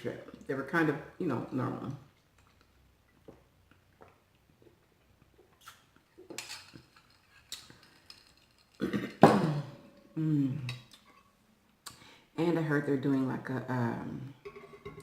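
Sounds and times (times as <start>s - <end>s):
person burping: 8.8s - 10.7s.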